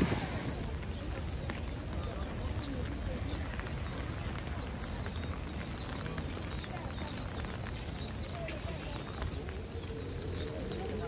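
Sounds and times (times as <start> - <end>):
birds chirping high and thin: 0.0 - 11.0
rain hissing: 0.0 - 11.0.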